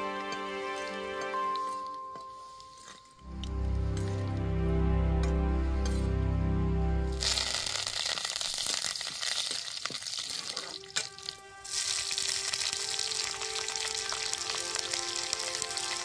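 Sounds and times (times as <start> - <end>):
chillies sizzling in hot oil: 7.2 - 16.0.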